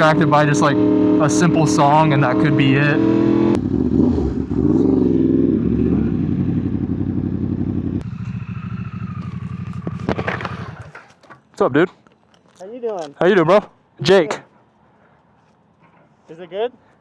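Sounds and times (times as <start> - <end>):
motorcycle engine at low revs: 0.0 - 11.3.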